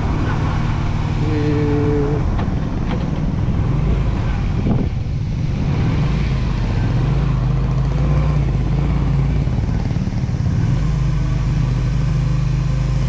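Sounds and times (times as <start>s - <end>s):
wind noise on microphone: 0.0s - 10.4s
motorcycle engine running: 0.0s - 13.0s.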